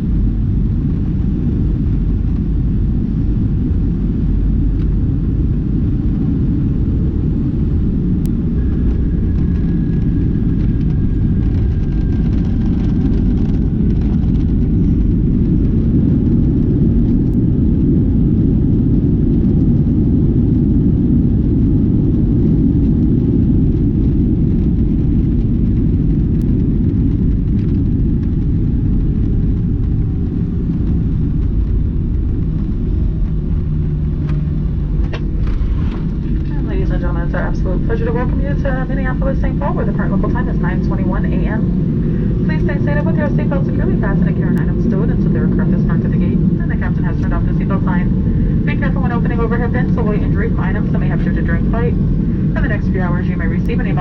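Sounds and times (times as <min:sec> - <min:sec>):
airliner cabin rumble while taxiing: 0:00.0 - 0:54.0.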